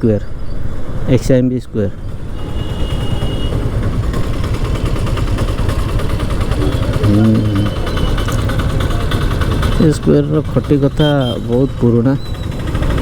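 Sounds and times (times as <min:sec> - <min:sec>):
road traffic rumble: 0:00.0 - 0:13.0
motorbike engine running: 0:02.0 - 0:13.0
short low hum: 0:06.5 - 0:08.7
thin high tone: 0:06.6 - 0:08.5.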